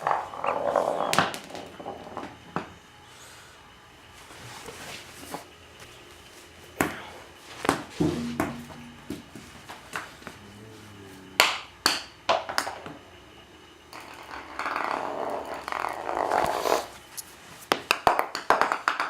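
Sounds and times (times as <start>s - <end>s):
ball knocking on hard floor: 1.0s - 2.7s, 7.6s - 10.4s, 11.4s - 13.0s, 13.9s - 16.6s, 17.7s - 19.0s.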